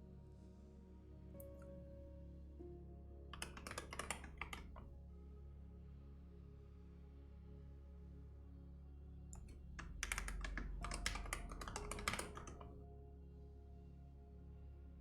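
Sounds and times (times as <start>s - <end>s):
soft background music: 0.0s - 15.0s
keyboard typing: 3.4s - 4.9s, 9.4s - 12.7s.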